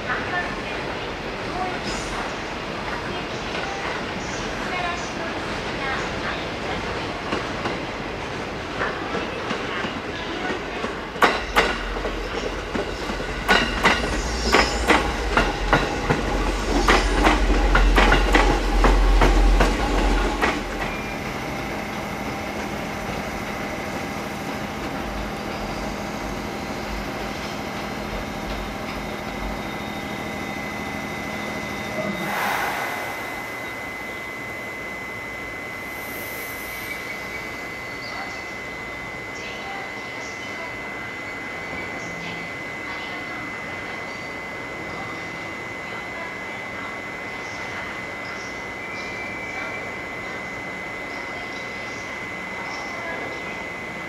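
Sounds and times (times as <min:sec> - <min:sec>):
train rumbling past: 0:08.6 - 0:38.8
high whine: 0:29.3 - 0:39.2
low hum: 0:31.4 - 0:38.4.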